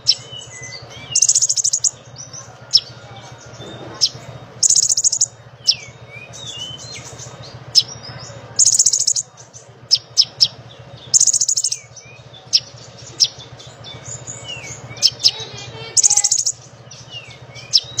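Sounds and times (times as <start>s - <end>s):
songbird trilling and chipping: 0.0s - 18.0s
steady low hum: 0.0s - 18.0s.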